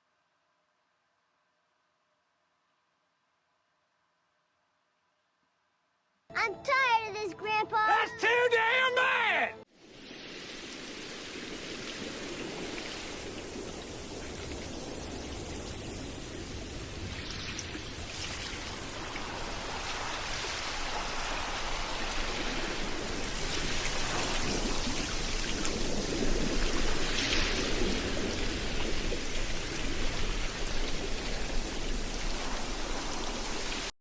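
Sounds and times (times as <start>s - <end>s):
steady rain falling: 9.7s - 34.0s.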